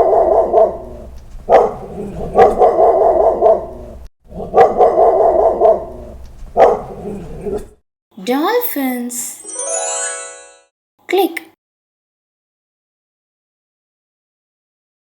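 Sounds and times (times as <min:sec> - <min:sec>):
dog barking: 0:00.0 - 0:07.7.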